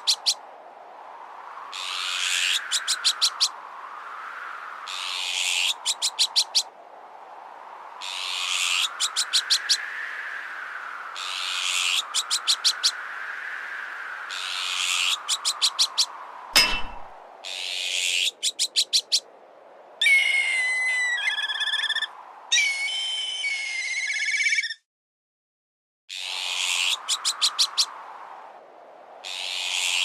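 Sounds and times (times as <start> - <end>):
strong wind noise: 0.0 - 17.5, 19.2 - 23.7, 26.3 - 30.0
sharp metallic impact: 16.6 - 17.2
magpie alarm calls: 20.0 - 24.8
whistled kite calls with trill: 20.0 - 24.8.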